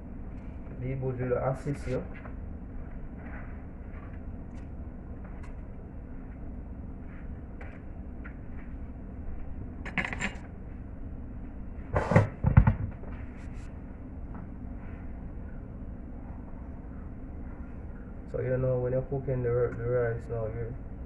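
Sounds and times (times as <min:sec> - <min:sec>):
knocks and thuds: 0:12.0 - 0:13.0.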